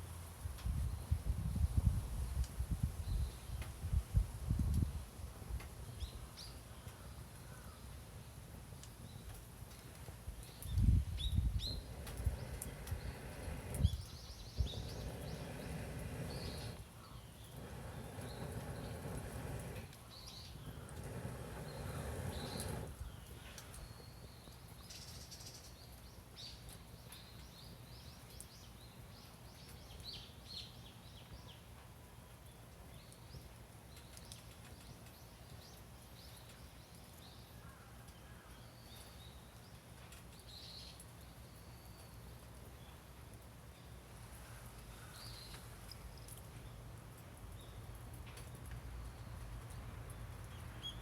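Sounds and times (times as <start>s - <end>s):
low steady hum: 10.8s - 23.0s.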